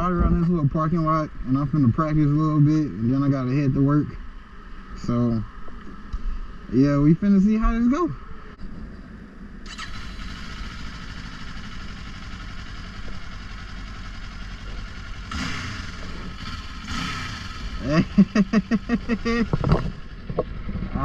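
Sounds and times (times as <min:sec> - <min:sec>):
motorcycle engine idling: 0:09.7 - 0:21.0.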